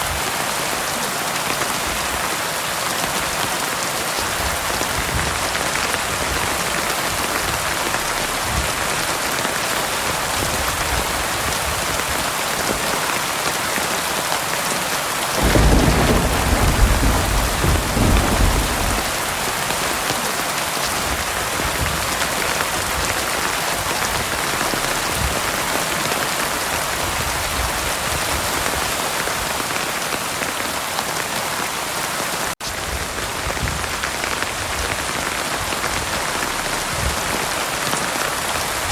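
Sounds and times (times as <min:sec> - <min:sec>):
heavy rain hissing: 0:00.0 - 0:38.9
thunder rumble: 0:15.4 - 0:20.1.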